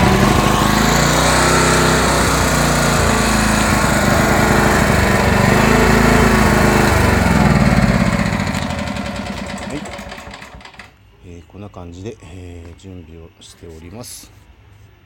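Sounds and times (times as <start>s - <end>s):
generator engine drone: 0.0s - 11.0s.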